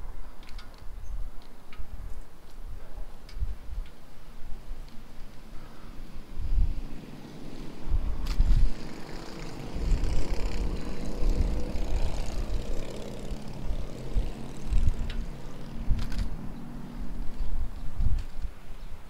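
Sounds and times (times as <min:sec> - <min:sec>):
wind buffeting microphone: 0:06.0 - 0:19.0
motor engine droning: 0:07.1 - 0:17.4.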